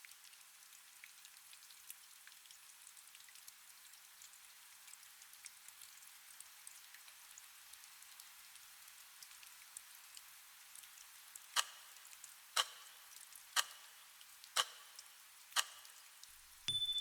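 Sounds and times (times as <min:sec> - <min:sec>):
steady rain hiss: 0:07.2 - 0:16.7
short sharp ticks: 0:11.6 - 0:11.9, 0:12.6 - 0:12.9, 0:13.6 - 0:13.9, 0:14.6 - 0:15.0, 0:15.6 - 0:16.0.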